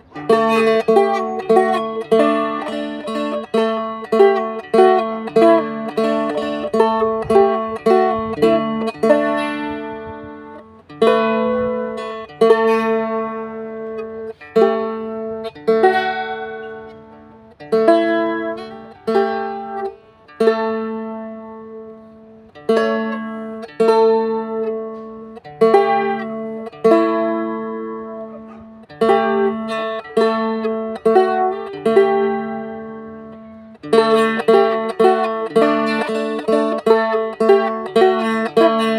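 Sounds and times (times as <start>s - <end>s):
plucked string instrument music: 0.0s - 38.9s.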